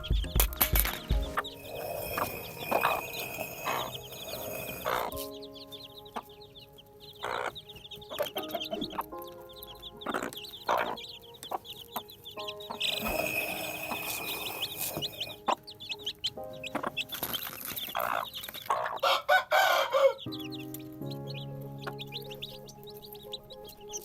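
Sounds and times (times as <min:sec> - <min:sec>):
background music: 0:00.0 - 0:24.0
chickens clucking: 0:00.0 - 0:24.0
chicks peeping: 0:00.0 - 0:24.0.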